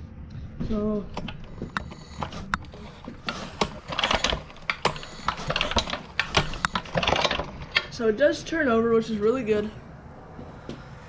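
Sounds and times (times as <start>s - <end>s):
sharp mechanical clicks: 1.1s - 8.0s.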